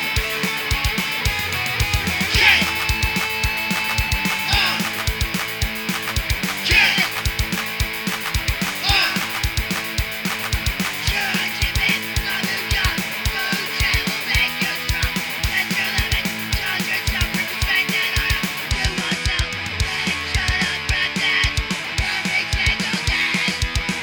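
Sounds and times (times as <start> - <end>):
electric guitar: 0.0 - 24.0
rock band playing: 0.0 - 24.0
kick drum beat: 0.1 - 11.9.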